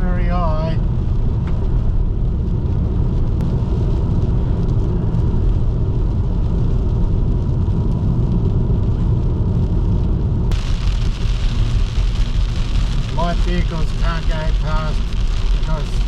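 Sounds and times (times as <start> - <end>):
car tyres and engine rumble: 0.0 - 16.0.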